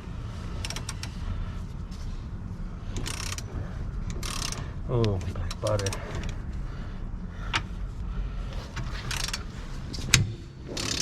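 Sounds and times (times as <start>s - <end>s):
hand ratchet ratcheting: 0.6s - 1.2s, 2.9s - 6.4s, 8.6s - 11.0s.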